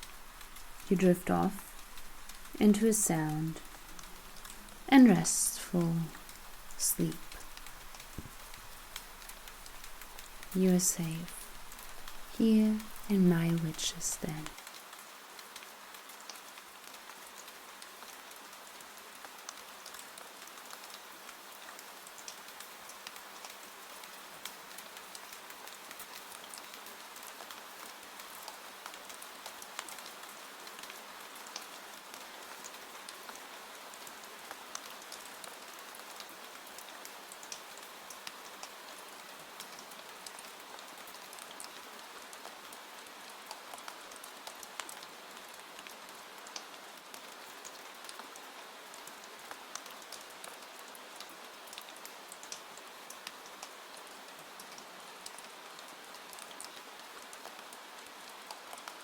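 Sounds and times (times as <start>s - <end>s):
raindrops ticking: 0.0s - 14.8s
steady rain hissing: 0.0s - 59.0s.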